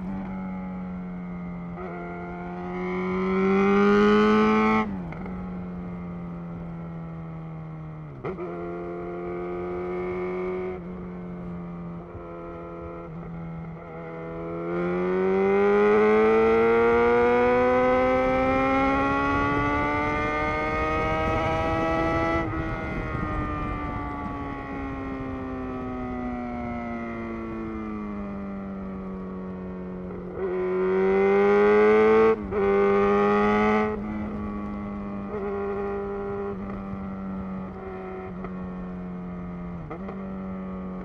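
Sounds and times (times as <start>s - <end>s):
motorcycle engine while riding: 0.0s - 41.0s.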